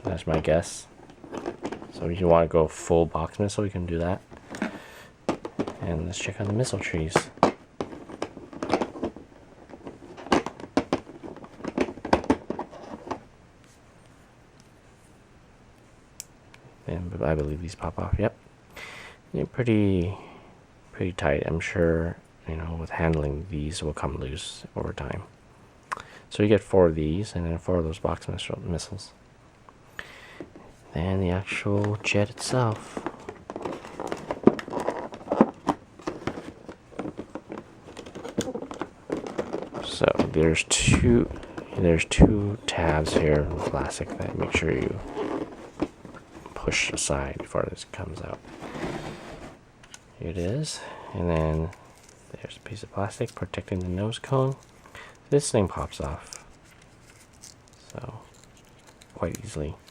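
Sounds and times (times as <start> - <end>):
plastic clicks and rustling: 31.8 - 40.7, 56.0 - 59.9
plastic packaging crackling: 32.0 - 46.8, 56.1 - 59.9.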